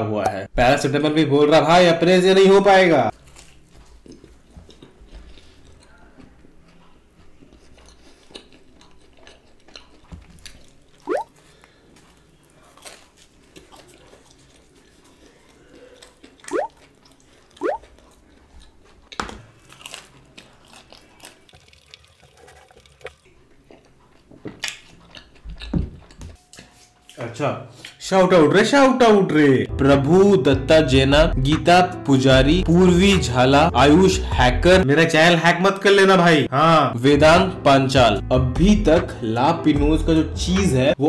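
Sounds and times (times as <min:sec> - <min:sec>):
chewing and biting pizza: 0:03.1 - 0:26.4
wet mouth sounds: 0:07.3 - 0:11.4, 0:16.0 - 0:18.0.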